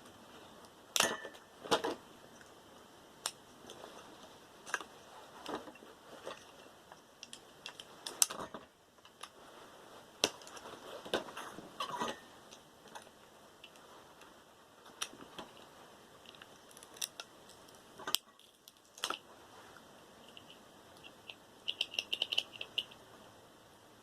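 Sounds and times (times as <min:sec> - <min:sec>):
small plastic parts clicking: 0:07.2 - 0:09.4, 0:14.9 - 0:19.2, 0:20.2 - 0:23.0.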